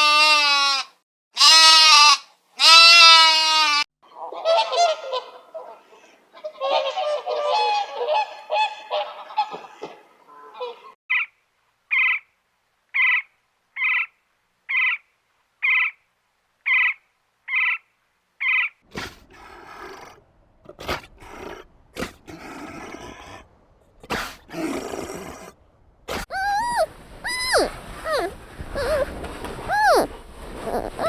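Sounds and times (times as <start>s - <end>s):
large animal roaring: 19.2s - 23.5s
pitched call rising and falling: 26.3s - 29.1s, 29.7s - 31.0s.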